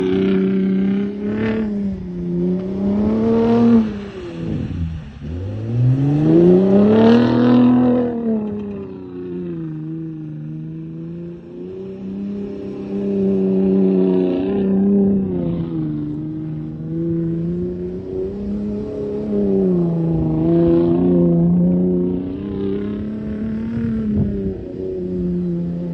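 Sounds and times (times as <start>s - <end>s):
pickup engine revving: 0.0s - 25.9s.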